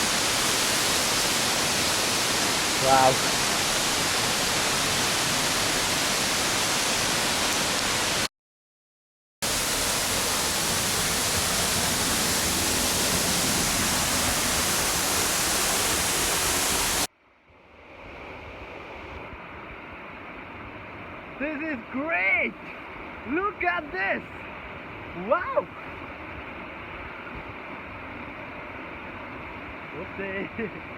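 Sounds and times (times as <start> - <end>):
waterfall roaring: 0.0 - 8.3, 9.4 - 17.1.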